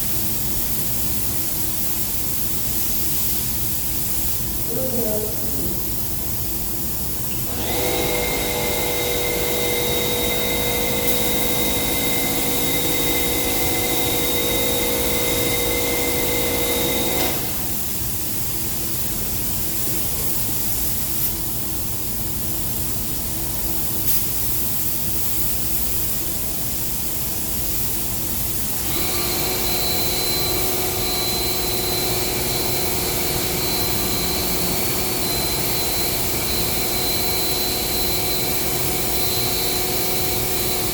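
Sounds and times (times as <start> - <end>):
spray-painting equipment hissing: 0.0 - 40.9
machine whine: 7.5 - 17.8, 28.7 - 40.9.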